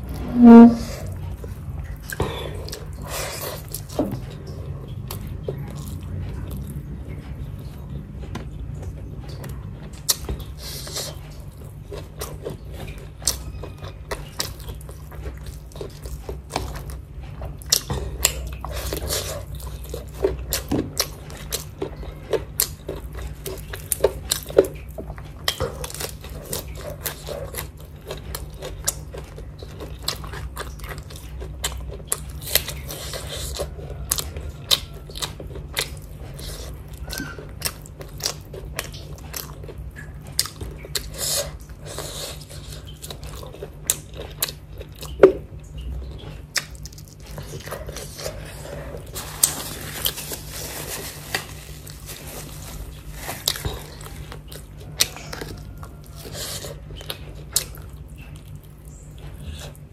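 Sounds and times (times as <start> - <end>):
steady low hum: 0.0 - 13.2
person chewing food: 0.0 - 59.9.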